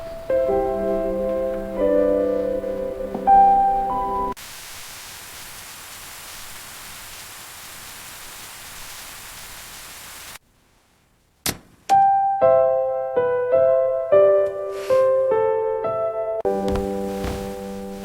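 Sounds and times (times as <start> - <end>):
soft piano music: 0.0 - 4.4, 11.9 - 18.0
steady hiss: 0.0 - 11.4, 16.5 - 18.0.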